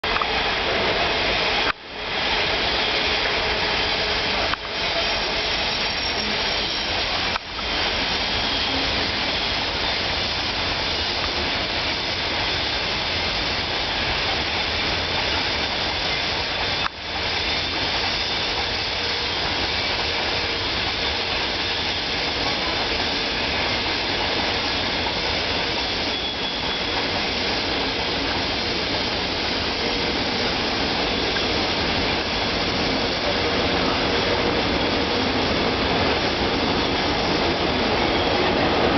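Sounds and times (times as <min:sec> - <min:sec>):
train rushing past: 0:00.0 - 0:38.9.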